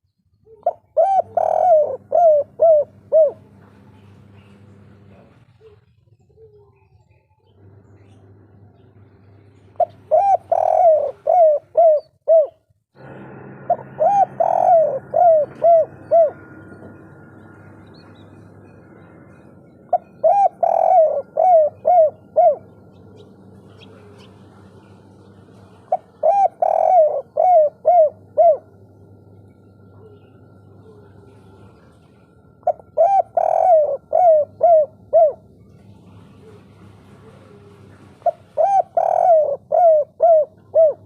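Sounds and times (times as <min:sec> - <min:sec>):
faint steady hum: 0:00.0 - 0:41.0
dove cooing: 0:00.4 - 0:07.2, 0:09.7 - 0:41.0.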